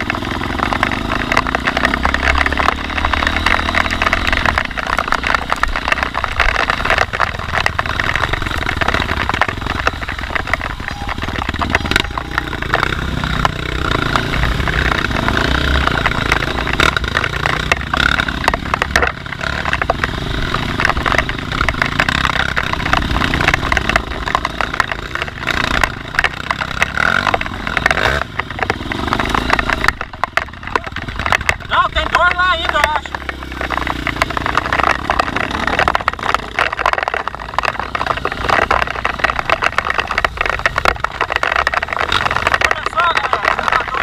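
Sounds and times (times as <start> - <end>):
clatter and knocks: 0.0 - 44.0
dirt bike engine revving: 0.0 - 44.0.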